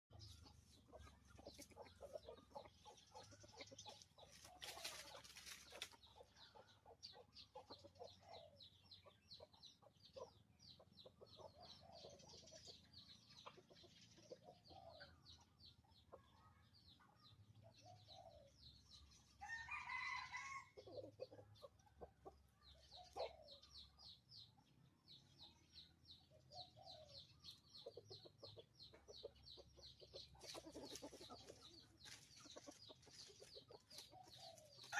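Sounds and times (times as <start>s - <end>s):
rooster crowing: 19.4s - 20.7s.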